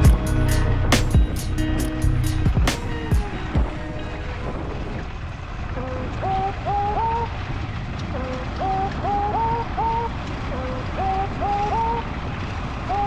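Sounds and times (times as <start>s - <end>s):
background music with rising melody: 0.0s - 3.7s.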